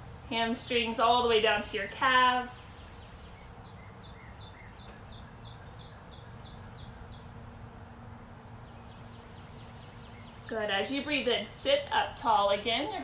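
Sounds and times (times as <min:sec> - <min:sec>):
low steady hum: 0:00.0 - 0:13.0
bird chirping: 0:02.8 - 0:13.0.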